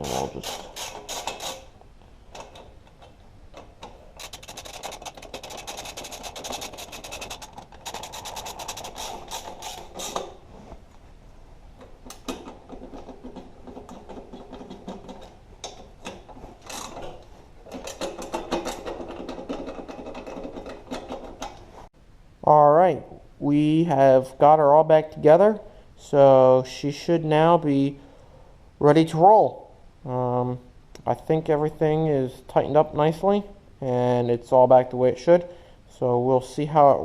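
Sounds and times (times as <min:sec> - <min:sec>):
tool ratcheting clicks: 0:00.0 - 0:01.7, 0:03.6 - 0:10.3.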